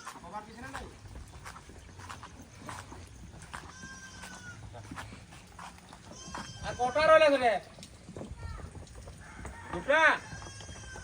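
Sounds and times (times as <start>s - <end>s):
goat calling: 3.5s - 4.8s, 5.9s - 7.2s, 10.2s - 11.0s.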